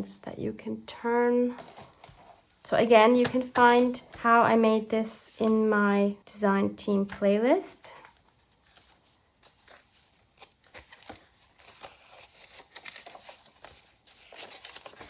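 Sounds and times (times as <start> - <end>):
paper rustling: 8.0 - 15.0.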